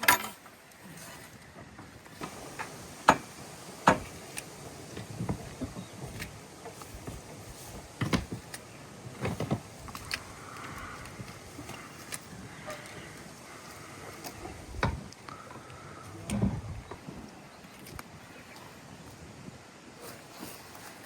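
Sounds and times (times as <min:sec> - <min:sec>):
sharp knocks and clunks: 0:01.8 - 0:04.2, 0:05.0 - 0:10.0.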